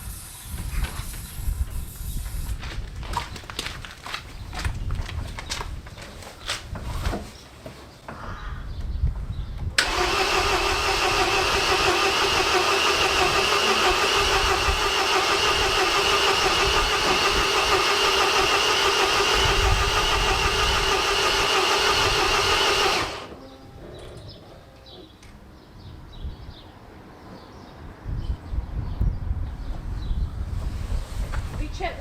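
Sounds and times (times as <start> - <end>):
starter motor cranking: 9.8 - 23.4.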